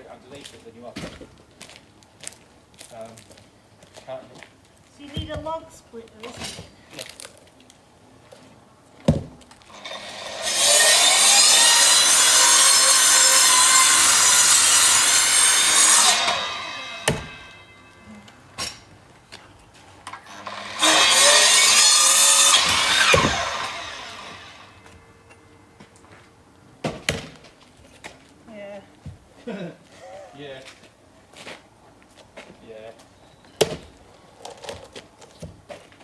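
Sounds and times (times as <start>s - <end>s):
power saw cutting log: 9.7s - 17.8s, 20.1s - 25.0s.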